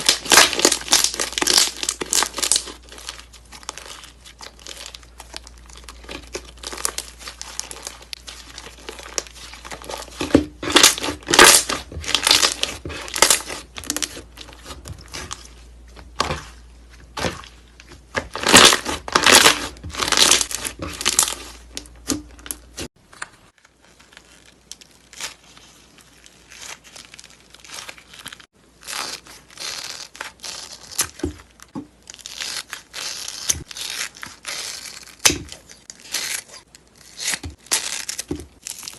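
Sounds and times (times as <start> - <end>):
slime crackling and popping: 0.0 - 15.4, 18.1 - 22.9.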